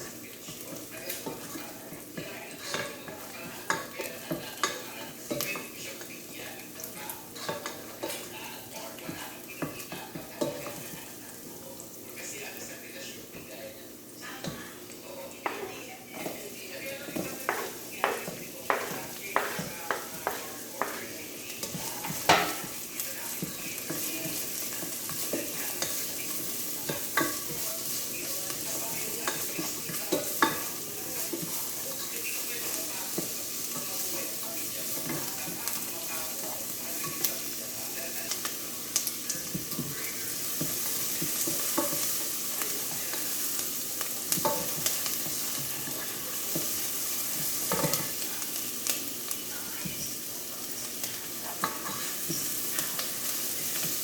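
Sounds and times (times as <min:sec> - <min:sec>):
chicken sizzling in a pan: 0:00.0 - 0:54.0.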